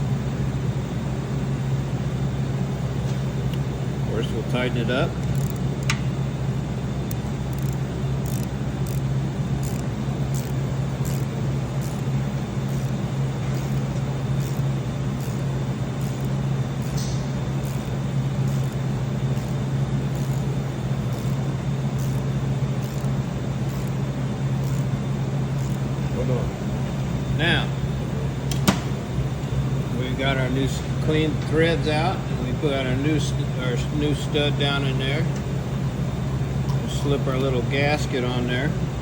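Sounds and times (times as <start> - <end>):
low machine hum: 0.0 - 39.0.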